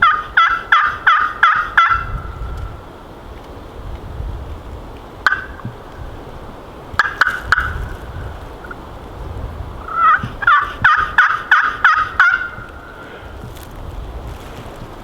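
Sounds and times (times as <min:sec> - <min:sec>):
turkey yelping: 0:00.0 - 0:02.3, 0:05.2 - 0:05.7, 0:07.0 - 0:07.8, 0:09.8 - 0:13.1.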